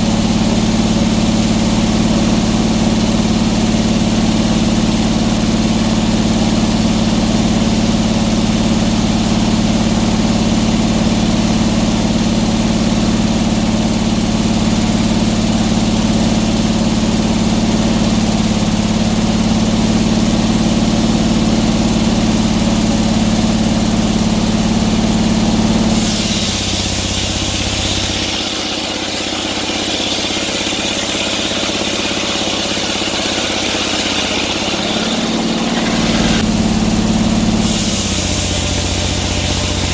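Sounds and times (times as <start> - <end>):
sawmill engine running: 0.0 - 39.9
high hissing: 25.9 - 36.4.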